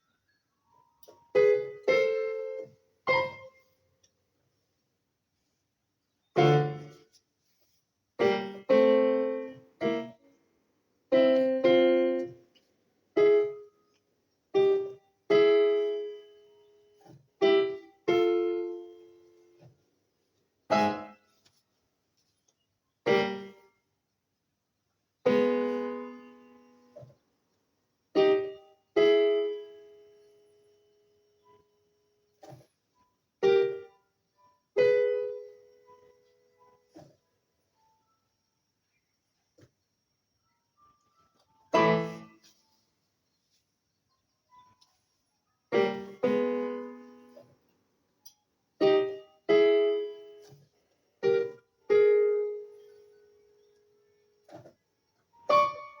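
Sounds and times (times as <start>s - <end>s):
piano chords ringing: 0.7s - 3.6s, 6.4s - 7.0s, 8.2s - 10.4s, 11.1s - 12.4s, 20.7s - 21.2s, 23.1s - 23.6s, 40.6s - 42.6s, 45.7s - 47.5s, 48.8s - 50.5s, 55.3s - 56.0s.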